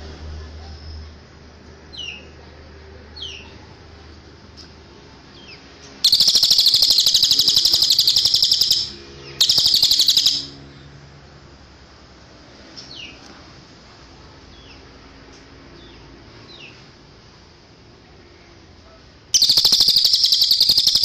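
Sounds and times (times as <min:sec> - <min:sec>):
downward-sliding bird chirps: 0:06.0 - 0:10.6, 0:19.4 - 0:21.0
songbird fast high trill: 0:06.0 - 0:10.6, 0:19.4 - 0:21.0.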